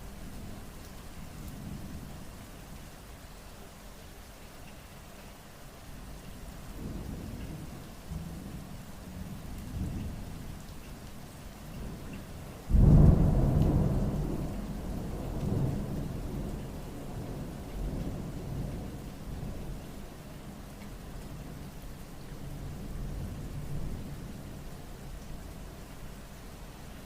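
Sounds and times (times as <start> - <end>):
steady rain: 0.0 - 27.0
thunder rumbling: 12.7 - 19.6.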